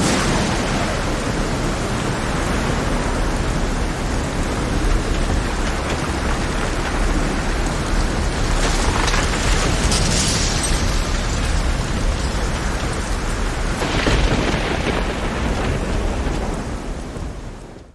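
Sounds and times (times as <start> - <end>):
heavy rain: 0.0 - 17.9
stormy sea rumble: 0.0 - 17.9.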